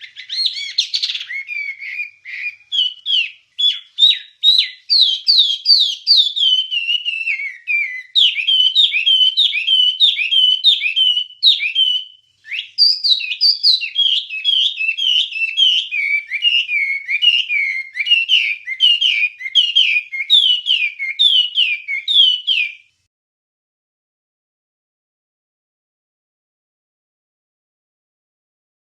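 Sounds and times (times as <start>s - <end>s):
songbird whistling: 0.0s - 23.0s.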